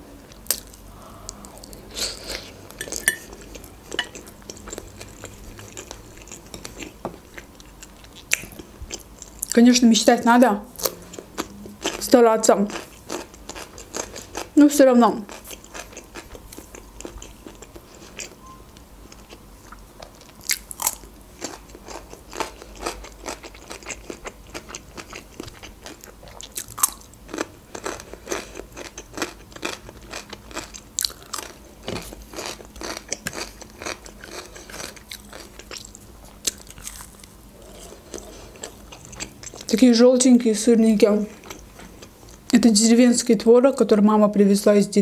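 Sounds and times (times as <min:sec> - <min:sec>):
cucumber crunching while chewing: 0:19.1 - 0:39.7.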